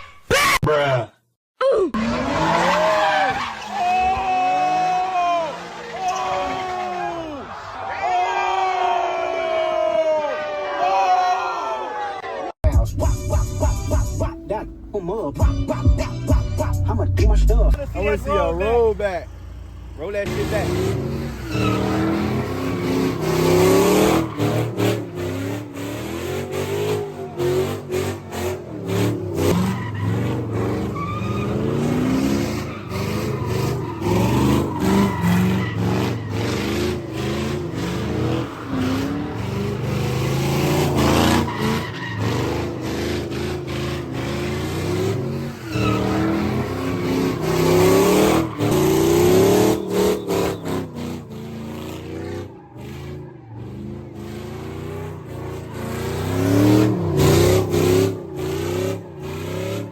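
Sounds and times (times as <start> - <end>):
car engines revving: 2.0 - 9.8, 14.7 - 59.9
tyres squealing: 2.1 - 8.8, 20.0 - 25.2, 26.9 - 51.3.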